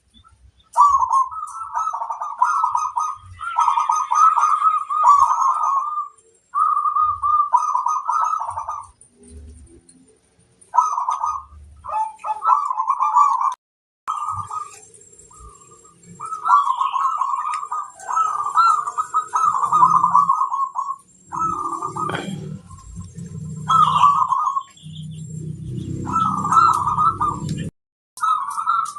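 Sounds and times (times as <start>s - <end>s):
dove cooing in trilled phrases: 0.8s - 9.4s, 10.7s - 24.8s, 25.8s - 27.6s, 28.2s - 28.9s.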